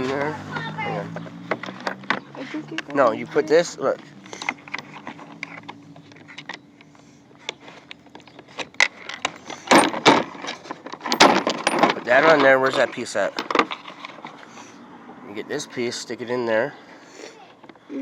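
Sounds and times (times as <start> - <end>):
clatter of handling: 4.0 - 14.5
tool parts clicking and clinking: 4.2 - 6.7, 7.5 - 14.2.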